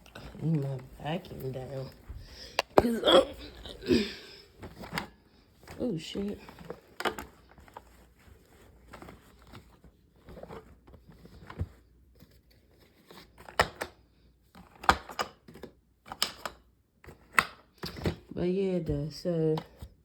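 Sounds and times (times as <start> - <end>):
vacuum cleaner parts clicking: 0.0 - 3.0, 4.6 - 7.8.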